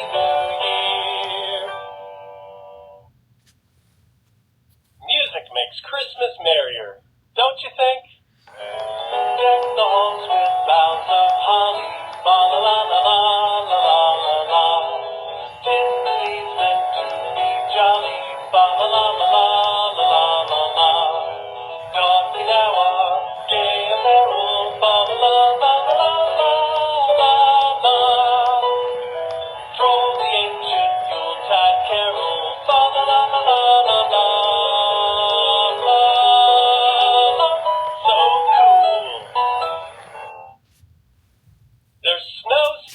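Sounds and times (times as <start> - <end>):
toy speaker playing song: 8.5 - 40.6.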